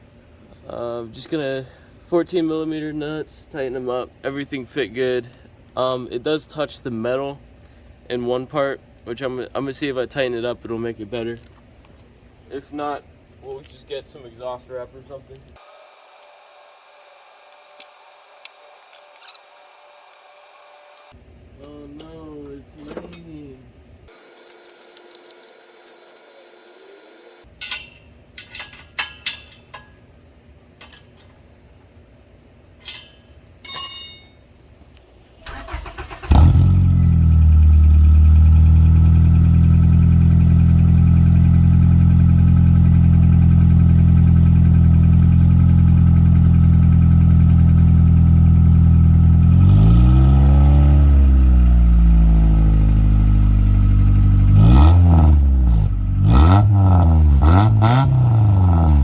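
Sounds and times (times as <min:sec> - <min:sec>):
car engine starting and idling: 0:35.1 - 0:59.0
engine revving: 0:35.5 - 0:59.0.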